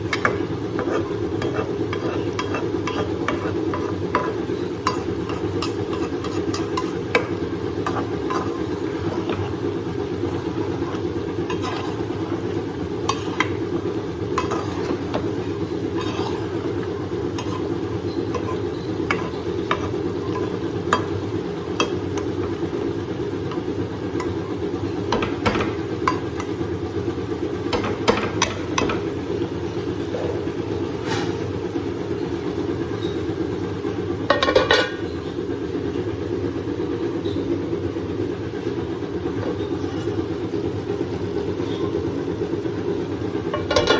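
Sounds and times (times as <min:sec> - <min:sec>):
spoon scraping a pan: 0:00.0 - 0:22.6, 0:34.3 - 0:35.2, 0:39.4 - 0:40.3, 0:43.5 - 0:43.9
steady low hum: 0:00.0 - 0:43.9.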